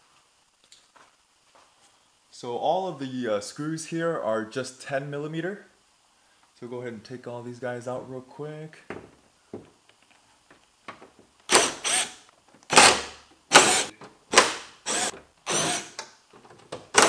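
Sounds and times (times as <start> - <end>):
power drill running: 11.5 - 16.0.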